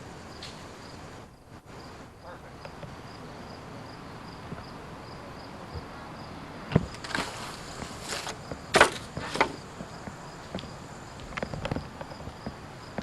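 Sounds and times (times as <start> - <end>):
faint insect chirp: 0.0 - 13.0
sharp knocks and scuffing: 6.7 - 13.0.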